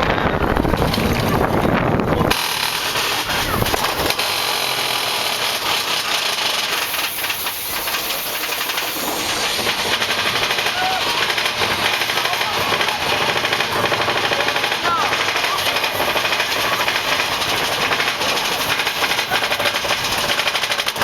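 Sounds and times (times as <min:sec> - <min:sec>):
roller coaster track rumble: 0:00.0 - 0:21.0
train rattling: 0:00.0 - 0:21.0
steady high hiss: 0:05.7 - 0:11.9.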